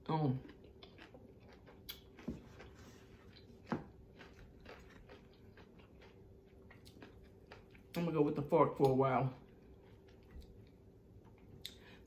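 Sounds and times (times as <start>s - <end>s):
chewing fried chicken: 0.0s - 12.0s.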